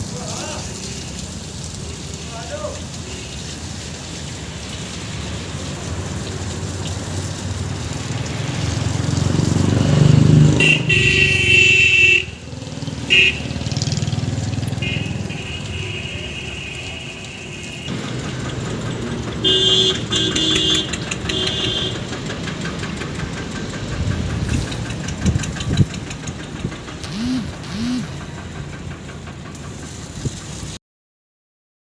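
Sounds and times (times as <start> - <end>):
heavy diesel engine running: 5.1 - 16.1, 17.6 - 30.8
short horn honks: 10.6 - 12.3, 19.4 - 22.0, 27.0 - 28.0
high-pitched tone: 27.0 - 28.2.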